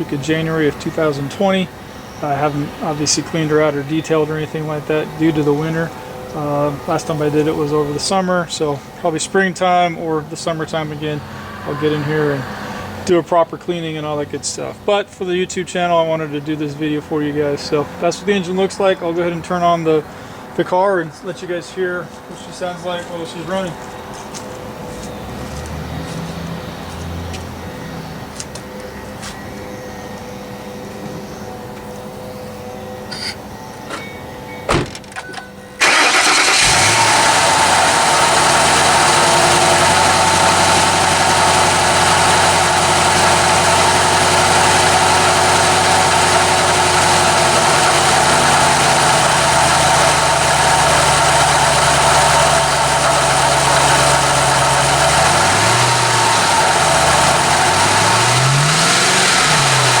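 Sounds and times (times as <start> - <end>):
car engine starting and idling: 0.0 - 14.7, 35.7 - 60.0
engine revving: 10.6 - 13.1, 25.0 - 28.0, 35.8 - 60.0.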